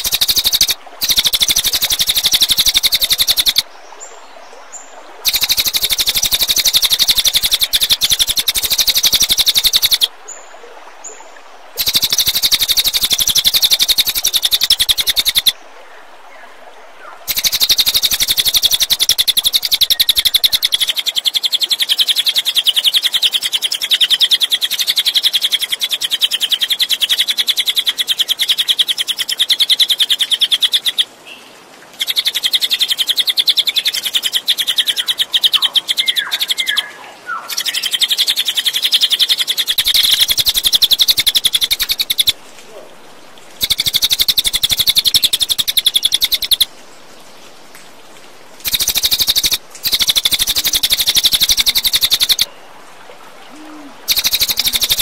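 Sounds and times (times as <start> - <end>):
jay rattling call: 0.0 - 3.6, 5.2 - 10.1, 11.8 - 15.6, 17.3 - 22.1, 32.0 - 42.8, 43.5 - 46.7, 48.6 - 52.5, 53.6 - 55.0.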